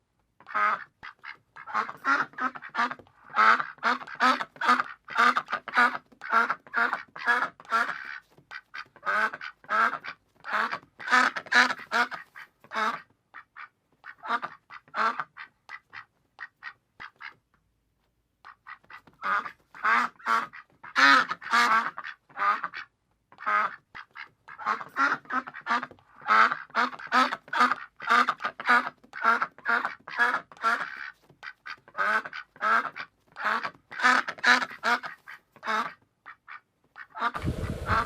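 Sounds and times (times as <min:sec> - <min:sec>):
duck quacking: 0:00.4 - 0:17.4, 0:18.4 - 0:38.0
steady rushing noise: 0:37.4 - 0:38.0.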